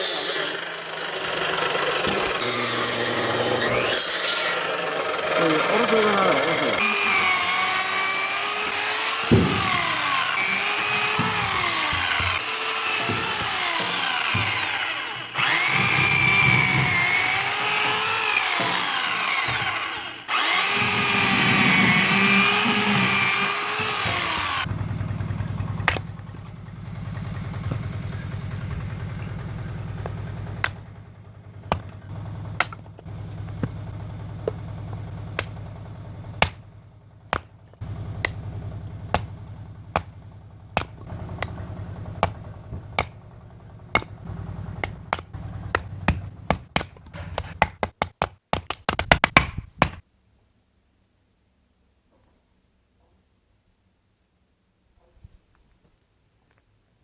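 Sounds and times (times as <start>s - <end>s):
chainsaw cutting logs: 0.0s - 24.7s, 25.6s - 26.6s, 27.6s - 31.0s, 31.6s - 50.0s
sharp knocks: 9.1s - 18.0s
low engine idle: 24.6s - 46.5s.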